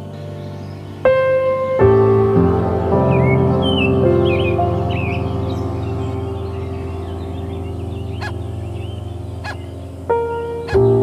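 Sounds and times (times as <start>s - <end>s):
background music with sustained chords: 0.0s - 11.0s
bird singing warbled phrases: 3.0s - 11.0s.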